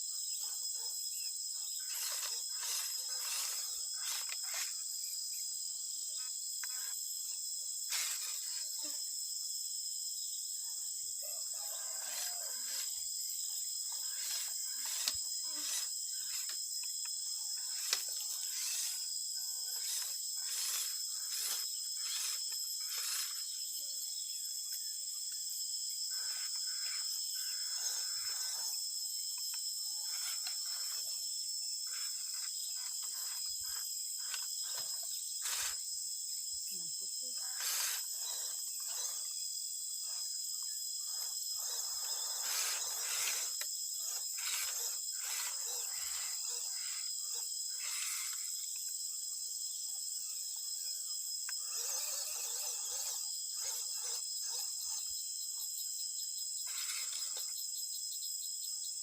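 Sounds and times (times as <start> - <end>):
insects chirring: 0.0 - 59.0
short scrapes and clicks: 14.1 - 16.6, 19.6 - 23.4, 34.3 - 35.8, 41.7 - 46.4.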